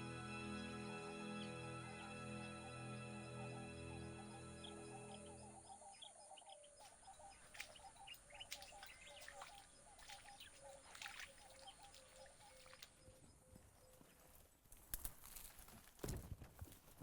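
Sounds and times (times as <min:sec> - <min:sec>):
high bird chirps: 0:03.5 - 0:12.8.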